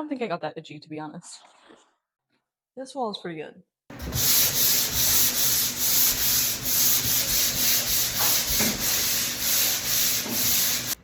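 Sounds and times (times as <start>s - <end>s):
sanding drywall scratchy hiss: 3.9s - 11.0s.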